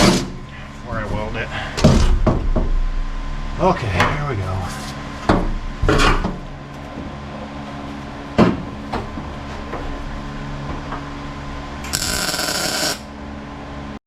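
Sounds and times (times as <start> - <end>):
steady hum: 0.0 - 14.0
welding arc crackling: 11.9 - 13.1.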